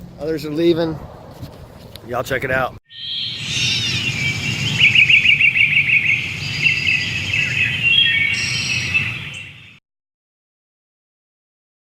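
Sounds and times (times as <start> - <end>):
birds chirping: 2.9 - 9.8.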